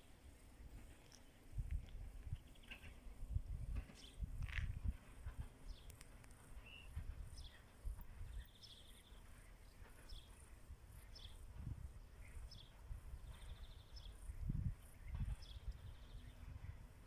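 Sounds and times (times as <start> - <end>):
bird chirps: 6.6 - 11.4.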